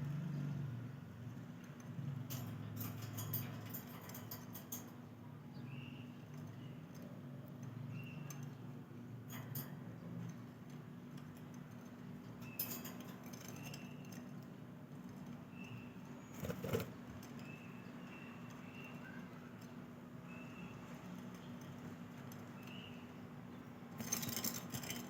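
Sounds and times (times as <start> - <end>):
sharp clicks and rattles: 16.4 - 17.0.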